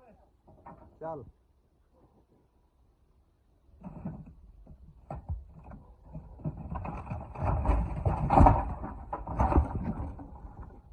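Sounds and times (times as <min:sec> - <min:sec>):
knocks and rattles on formwork: 0:03.8 - 0:10.9.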